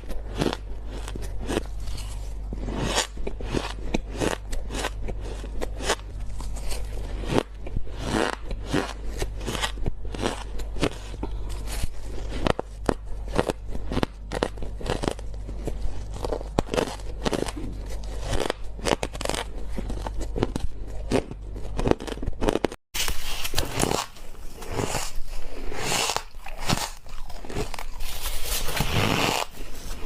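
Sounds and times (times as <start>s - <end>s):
ice being bitten: 23.0s - 30.0s.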